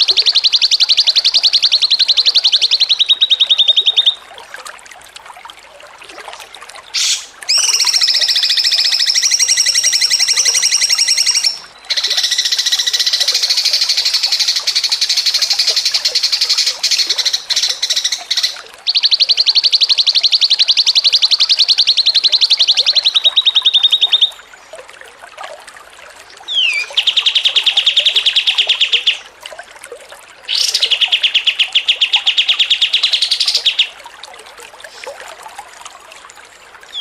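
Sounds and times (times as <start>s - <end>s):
songbird trilling: 0.0s - 4.2s, 7.0s - 24.3s, 26.5s - 29.2s, 30.5s - 34.0s.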